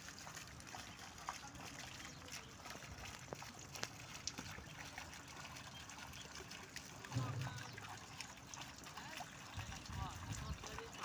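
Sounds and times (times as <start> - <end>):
faint trickling water: 0.0 - 11.0
small birds chirping: 0.9 - 2.9, 4.5 - 8.1.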